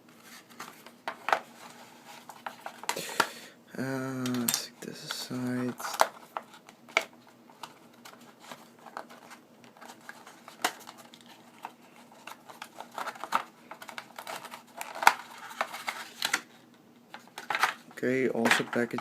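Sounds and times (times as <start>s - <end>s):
packaging crinkling and clicking: 5.5s - 16.5s, 17.1s - 19.0s.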